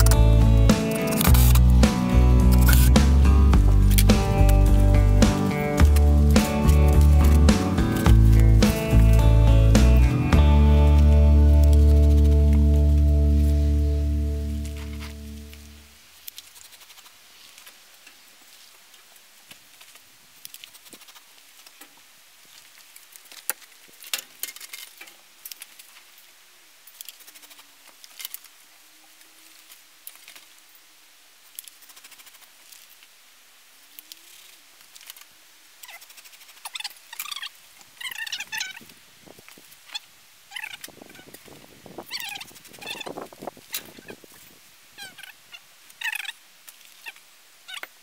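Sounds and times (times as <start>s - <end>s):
small clicks and scrapes: 0.0s - 1.8s, 2.5s - 3.1s, 14.7s - 30.8s, 31.4s - 33.2s, 33.8s - 48.0s
faint wavering hum: 0.0s - 16.0s
insulation rustling and crackling: 0.0s - 48.0s.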